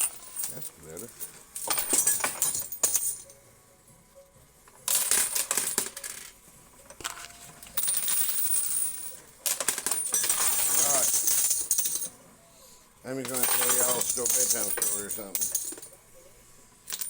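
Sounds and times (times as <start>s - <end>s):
coins clinking on metal: 0.0s - 3.4s, 4.8s - 12.2s, 13.2s - 16.0s.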